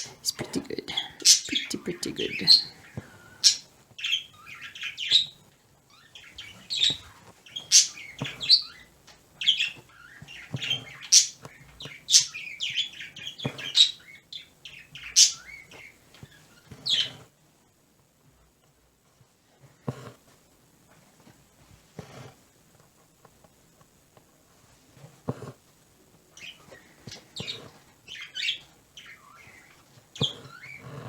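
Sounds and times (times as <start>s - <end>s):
pet birds chirping: 0.0s - 17.2s, 26.4s - 31.0s.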